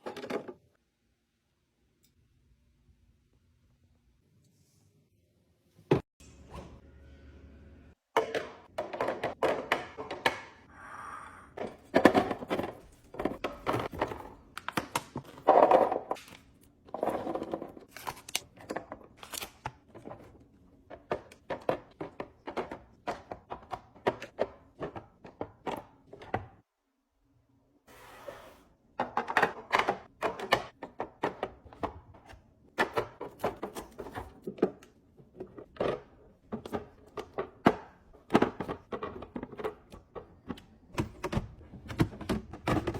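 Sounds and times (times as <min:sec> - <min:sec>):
packages knocking and crinkling: 0:11.6 - 0:26.4, 0:29.0 - 0:42.9.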